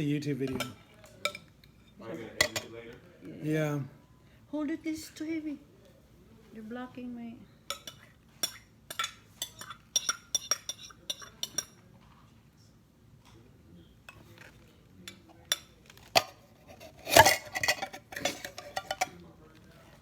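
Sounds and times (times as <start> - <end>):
dishes clattering: 0.4 - 2.7, 7.7 - 11.8, 15.1 - 19.2
spoon and dishes clinking: 0.4 - 2.7, 7.7 - 11.9, 14.1 - 19.2.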